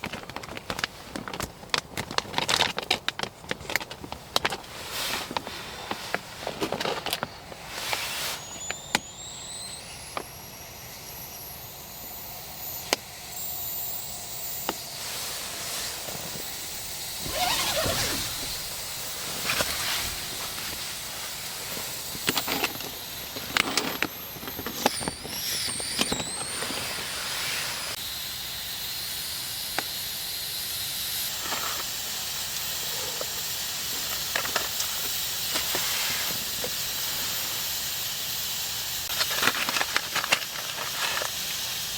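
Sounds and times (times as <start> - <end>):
crinkly plastic handling: 0.0 - 8.7
ration heater hissing: 0.0 - 41.9
thin whistle: 7.4 - 31.8.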